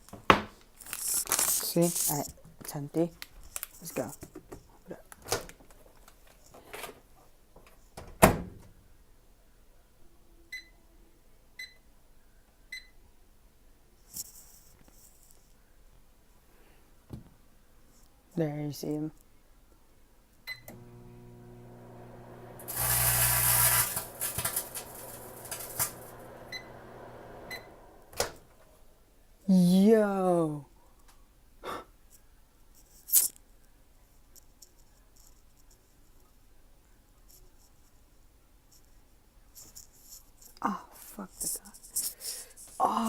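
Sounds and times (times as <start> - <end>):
handling rustles: 0.1 - 7.1
crisp bag crackling and popping: 0.8 - 2.2, 22.7 - 26.0
microwave oven humming: 20.6 - 28.4.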